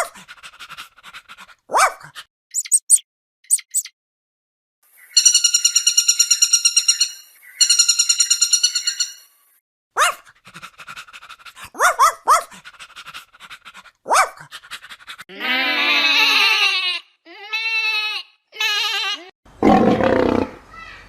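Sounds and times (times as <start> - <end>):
dog yelping: 1.7 - 2.7, 10.0 - 10.2, 11.7 - 12.6, 14.1 - 14.4.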